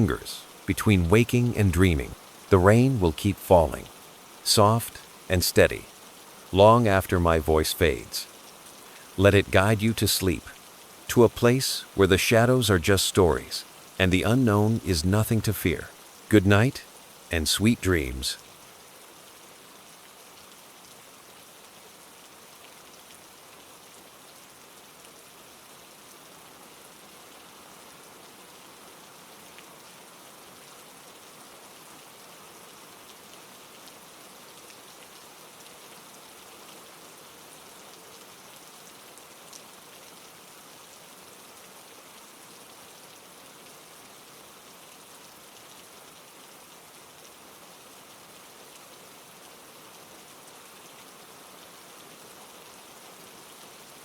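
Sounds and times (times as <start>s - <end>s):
soft rain patter: 0.0s - 54.0s.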